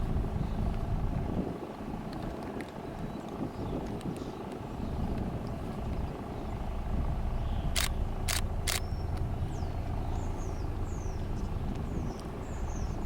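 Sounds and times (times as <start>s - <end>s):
diesel locomotive engine rumbling: 0.0s - 3.1s, 4.5s - 13.0s
small birds chirping: 2.8s - 13.0s
sharp clicks: 7.7s - 9.2s.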